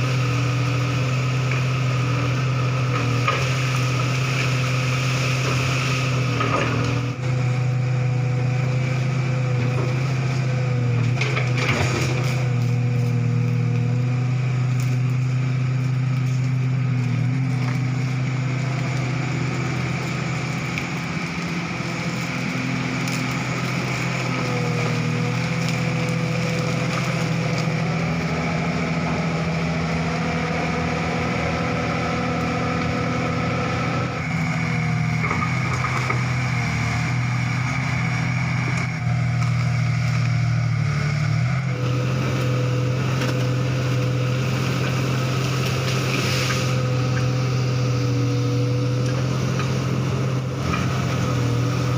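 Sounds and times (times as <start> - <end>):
excavator diesel engine running: 0.0 - 51.9
hydraulic whine: 0.0 - 51.9
wood crunching and cracking: 14.6 - 29.4.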